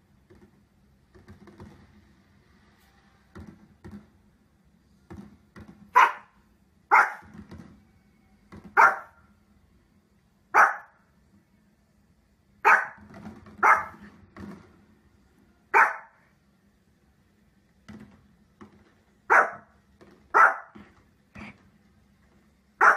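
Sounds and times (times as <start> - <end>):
small dog barking: 5.9 - 7.3, 8.7 - 9.2, 10.5 - 11.0, 12.6 - 14.0, 15.7 - 16.2, 19.3 - 19.7, 20.3 - 20.8.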